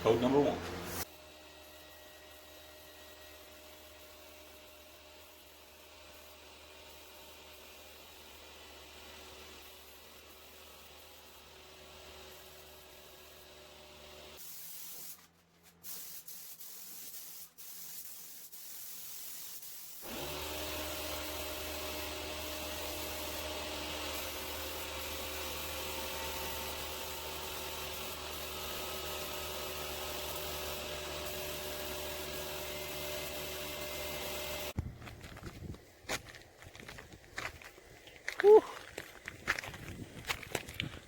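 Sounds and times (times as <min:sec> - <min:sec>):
spray gun hissing: 0:14.4 - 0:15.2, 0:15.8 - 0:34.8.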